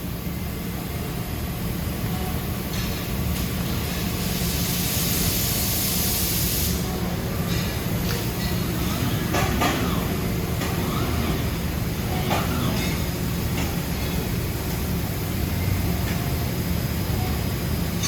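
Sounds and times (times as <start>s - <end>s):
air hiss: 4.1s - 6.9s
low machine hum: 6.7s - 18.0s.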